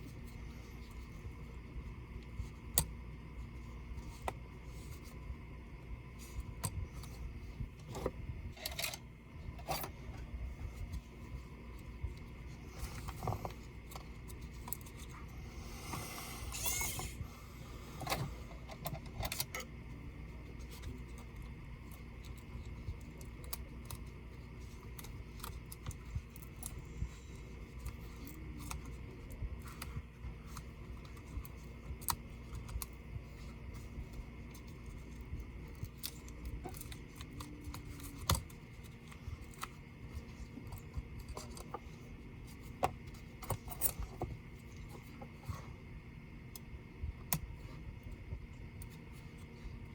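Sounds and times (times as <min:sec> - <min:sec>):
hand tools scraping: 0:15.8 - 0:17.2.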